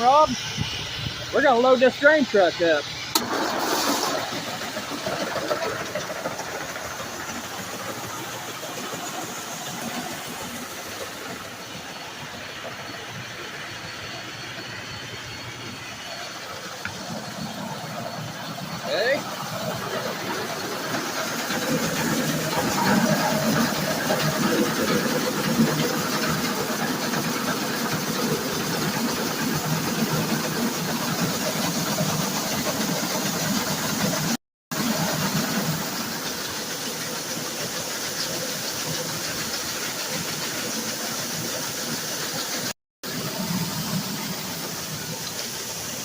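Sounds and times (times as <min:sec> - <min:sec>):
grain auger running: 0:00.0 - 0:11.8, 0:14.4 - 0:46.0
grain pouring: 0:01.4 - 0:11.2.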